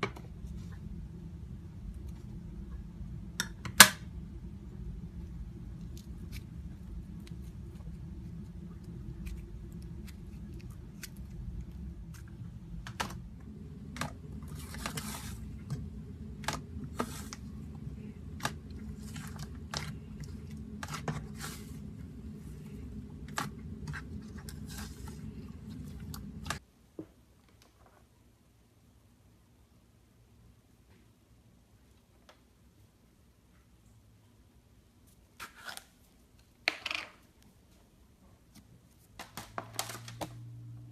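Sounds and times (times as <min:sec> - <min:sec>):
steady low rumble: 0:00.0 - 0:26.6.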